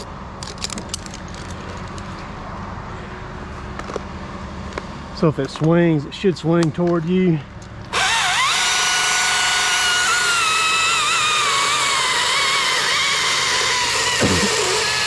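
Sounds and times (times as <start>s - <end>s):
chainsaw revving under load: 7.9s - 15.0s.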